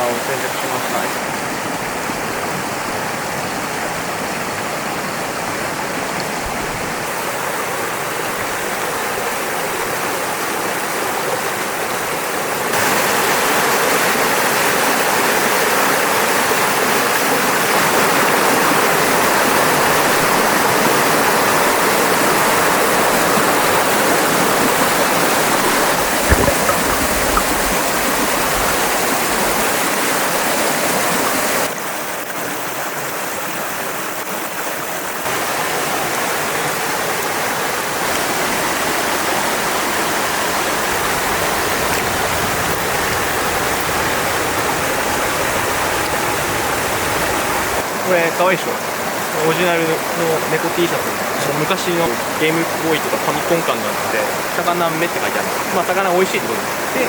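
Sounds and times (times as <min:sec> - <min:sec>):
stream rushing over rocks: 0:00.0 - 0:57.0
low knocks: 0:25.8 - 0:29.6.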